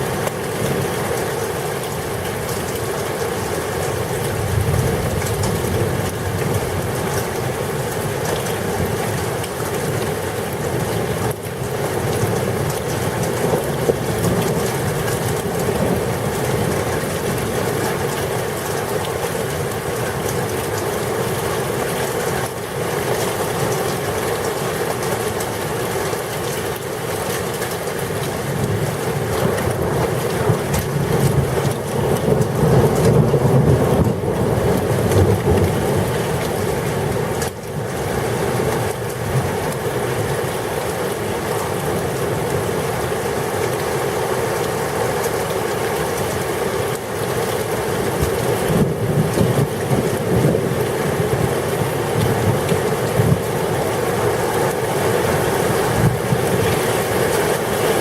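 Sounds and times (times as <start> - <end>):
heavy rain: 0.0 - 58.0
wind buffeting microphone: 48.0 - 57.5.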